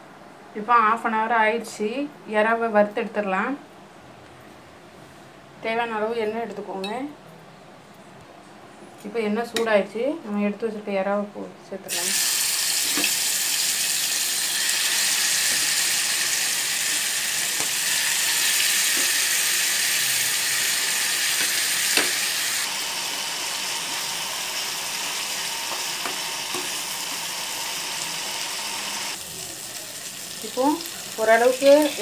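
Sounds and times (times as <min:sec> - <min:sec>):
prawns sizzling in oil: 0:11.9 - 0:32.0.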